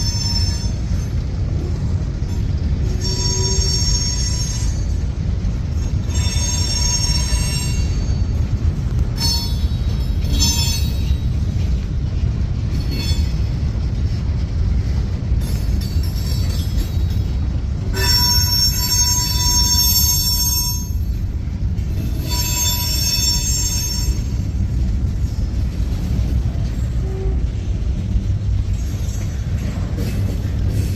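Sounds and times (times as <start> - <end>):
train wheels rumbling on rail: 0.0 - 30.9
high-pitched wheel squeals: 2.9 - 5.0, 6.0 - 8.4, 18.0 - 21.0, 22.1 - 24.5.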